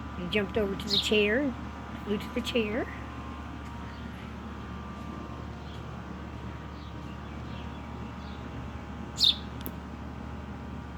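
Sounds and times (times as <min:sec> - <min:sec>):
bird chirp: 0:06.7 - 0:08.6, 0:09.2 - 0:09.6
fledgling bird peeping: 0:09.2 - 0:09.6.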